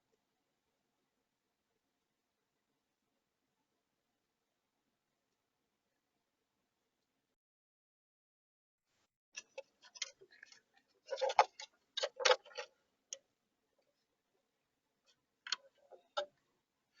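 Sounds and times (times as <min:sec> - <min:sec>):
sharp clicks and knocks: 0:09.4 - 0:13.2, 0:15.1 - 0:16.4.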